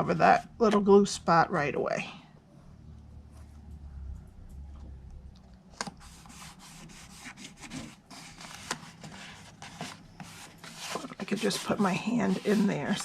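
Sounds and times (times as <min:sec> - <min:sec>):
paper rubbed by hand: 0:06.0 - 0:13.0
paper rustling and crinkling: 0:07.5 - 0:13.0.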